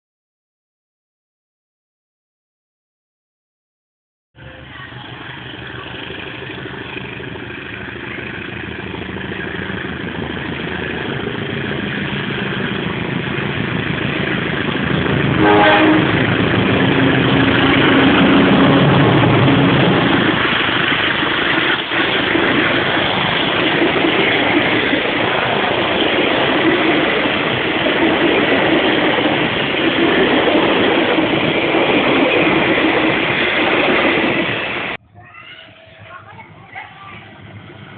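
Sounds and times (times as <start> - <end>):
train passing: 4.4 - 37.9
train horn blast: 15.3 - 16.4.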